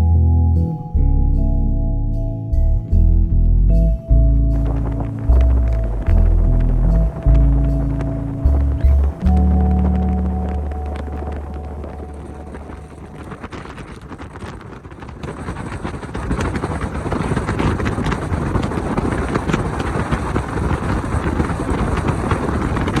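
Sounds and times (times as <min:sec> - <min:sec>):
backing music: 0:00.0 - 0:13.4
wind rushing over microphone: 0:03.8 - 0:23.0
motorcycle engine and road noise: 0:04.4 - 0:23.0.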